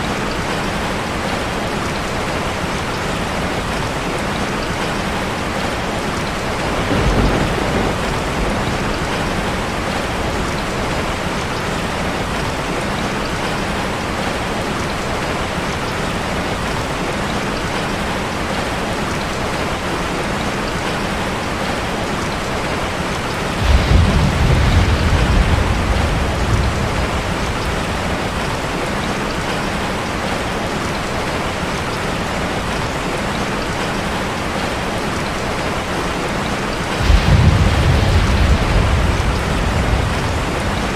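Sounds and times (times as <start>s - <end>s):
heavy rain on a metal roof: 0.0s - 40.9s
thunder rolling: 6.4s - 11.4s, 23.5s - 29.5s, 36.9s - 40.9s.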